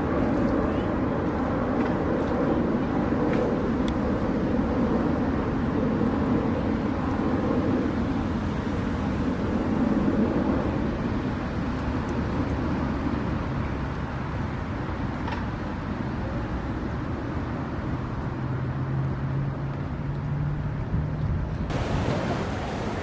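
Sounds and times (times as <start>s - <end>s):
wind: 0.0s - 23.0s
boat engine running: 21.7s - 23.0s
water noise: 21.7s - 23.0s.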